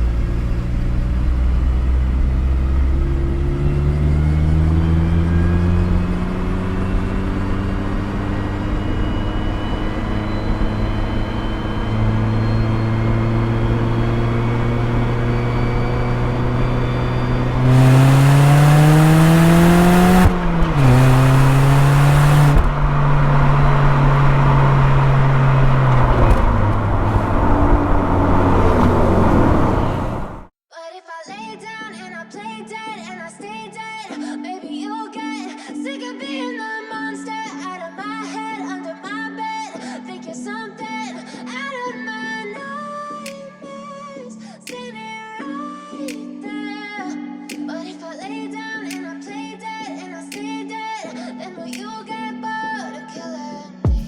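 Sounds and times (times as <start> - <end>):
car engine and exhaust: 0.0 - 30.5.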